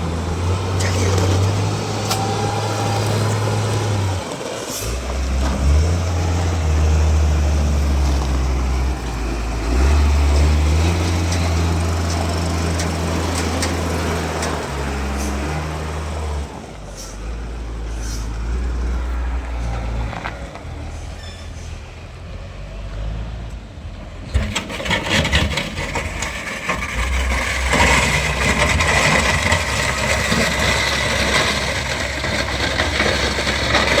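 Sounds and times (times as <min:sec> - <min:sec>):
heavy machinery engine rumbling: 0:00.0 - 0:34.0.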